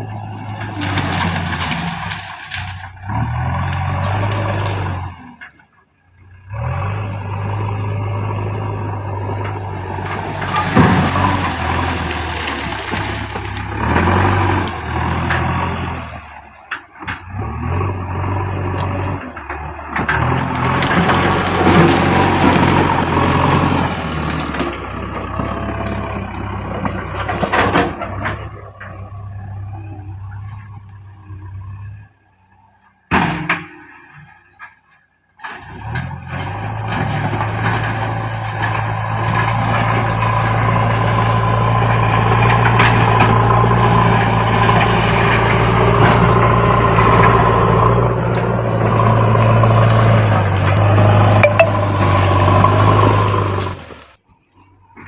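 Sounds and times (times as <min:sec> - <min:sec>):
diesel backhoe engine running: 0:00.0 - 0:55.0
bucket scraping soil: 0:09.0 - 0:16.6, 0:38.6 - 0:54.2.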